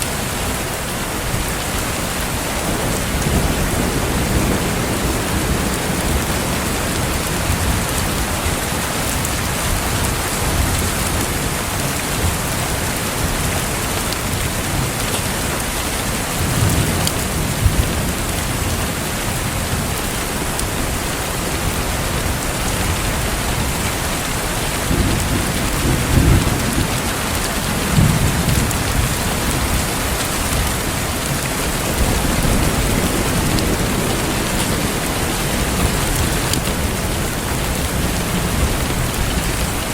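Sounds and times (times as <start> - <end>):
heavy rain: 0.0 - 39.9
distant thunder rumbling: 2.0 - 15.4, 16.0 - 39.9.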